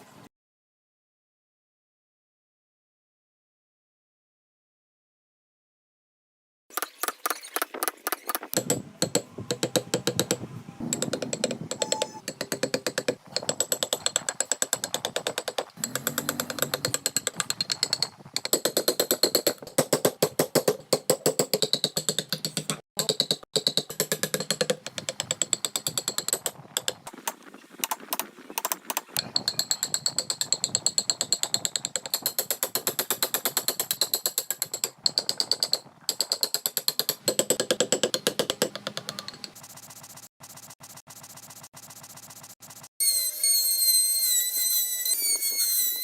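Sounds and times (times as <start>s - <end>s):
carving tool clicking on wood: 8.5s - 27.0s, 28.6s - 39.6s.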